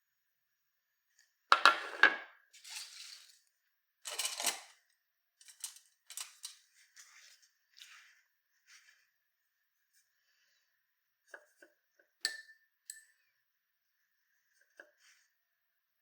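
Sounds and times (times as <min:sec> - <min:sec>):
small hard objects clinking: 0:02.6 - 0:03.4, 0:04.0 - 0:04.8, 0:05.4 - 0:07.3.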